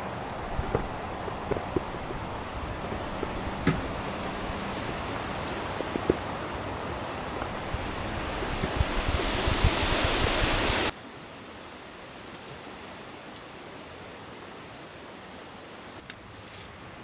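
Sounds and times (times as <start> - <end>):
strong wind buffeting microphone: 0.0 - 10.9.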